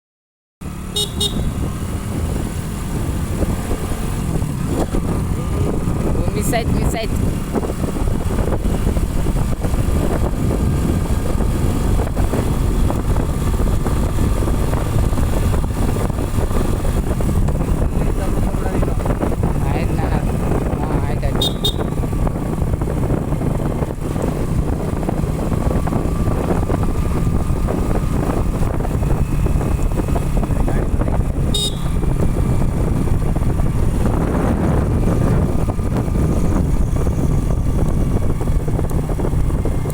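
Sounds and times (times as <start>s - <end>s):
motorcycle engine rumble: 0.6s - 39.9s
wind buffeting microphone: 1.2s - 39.9s.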